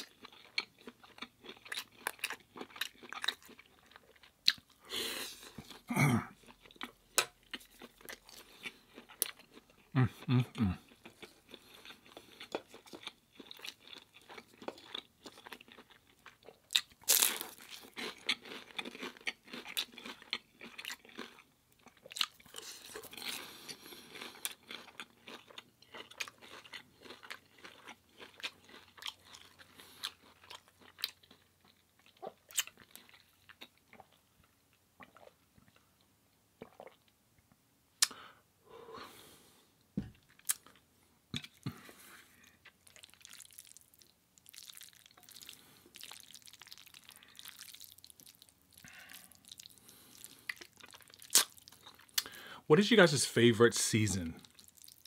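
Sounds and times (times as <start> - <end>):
wet chewing: 0.0 - 34.2, 41.4 - 52.5, 54.4 - 55.0
crunching of crispy food: 0.0 - 36.1, 40.2 - 53.1, 53.9 - 55.0.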